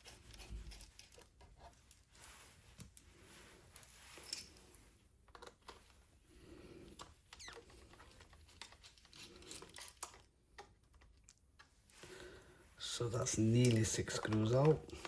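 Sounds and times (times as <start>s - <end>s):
screwdriver clicking and scraping: 0.0s - 2.0s, 7.0s - 11.7s.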